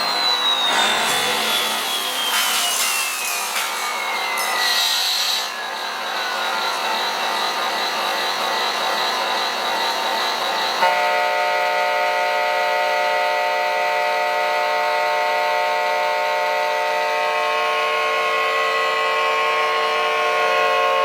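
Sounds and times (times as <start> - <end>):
steady alarm tone: 0.1 - 11.2.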